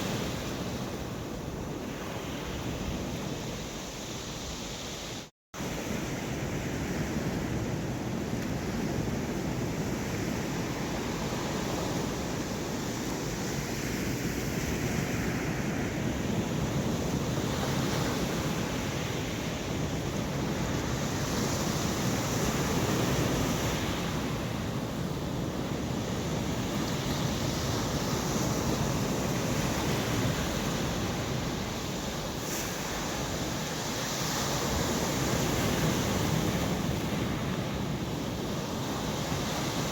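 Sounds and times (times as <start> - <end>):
waves breaking on stony shore: 8.6 - 39.9.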